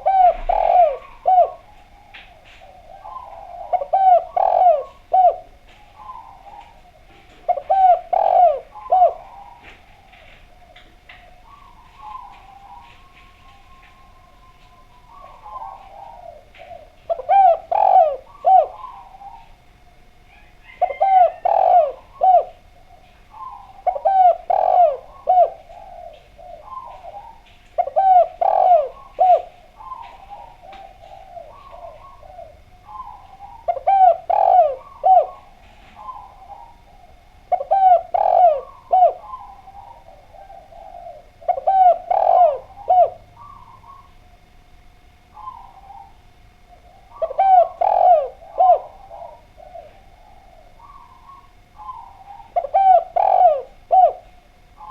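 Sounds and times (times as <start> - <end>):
dove cooing: 0.0 - 54.9.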